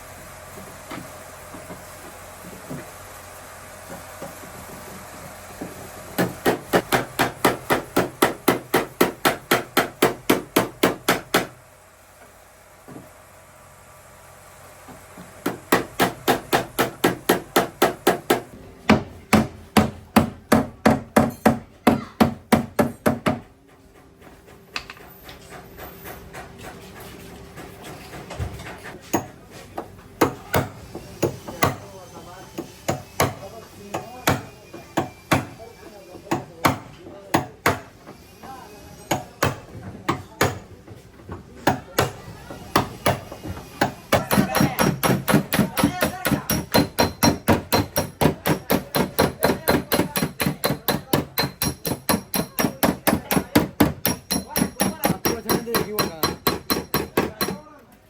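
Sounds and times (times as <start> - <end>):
hammer beating sheet metal: 43.8 - 57.7.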